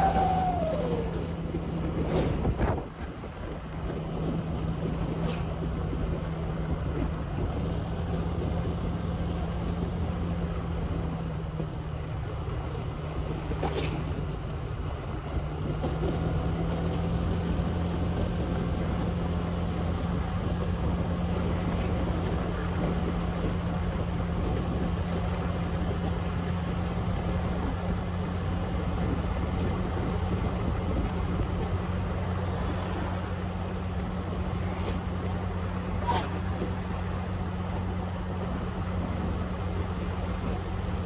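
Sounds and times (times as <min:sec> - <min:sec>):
motorbike engine humming: 0:00.0 - 0:02.0
road and wind noise: 0:00.0 - 0:41.0.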